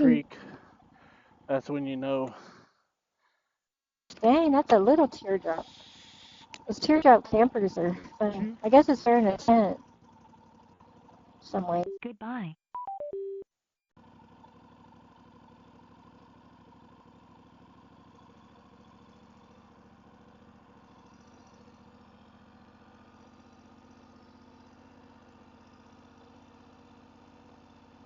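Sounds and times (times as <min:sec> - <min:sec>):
faint motorcycle engine running: 0:00.0 - 0:02.6, 0:04.1 - 0:12.4, 0:14.0 - 0:28.0.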